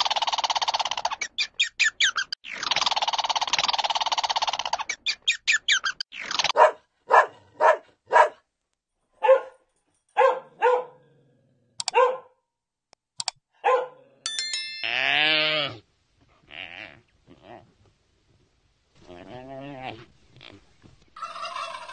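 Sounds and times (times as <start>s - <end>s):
dog barking: 6.5s - 8.5s, 9.2s - 11.1s, 11.9s - 12.4s, 13.6s - 14.1s
brief chime: 14.3s - 15.3s
bleating: 14.9s - 15.8s, 16.5s - 17.6s.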